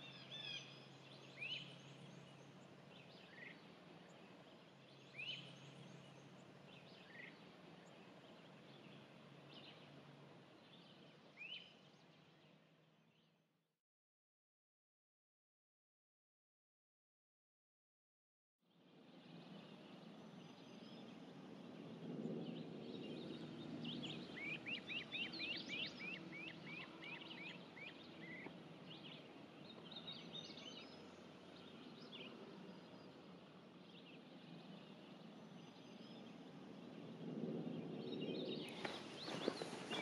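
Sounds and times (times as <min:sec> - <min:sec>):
birds singing: 0:00.0 - 0:13.2, 0:19.2 - 0:40.0
footsteps: 0:38.7 - 0:40.0.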